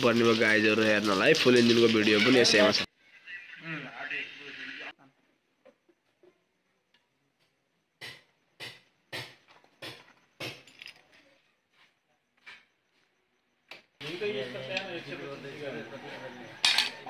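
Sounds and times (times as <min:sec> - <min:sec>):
metal tools clinking: 0:10.6 - 0:11.3, 0:16.6 - 0:17.0.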